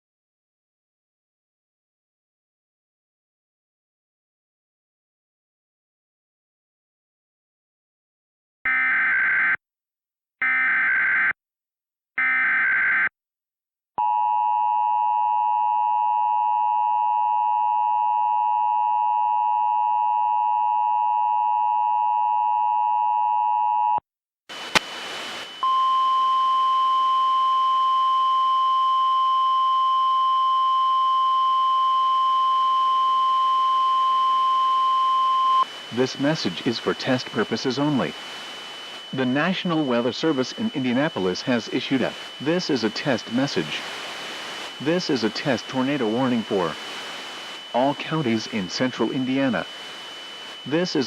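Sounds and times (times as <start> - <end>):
warning alarm tone: 8.7 - 9.6
radio hiss: 24.5 - 25.7, 35.6 - 51.0
click: 24.7 - 25.0
screeching data bursts: 35.6 - 51.0.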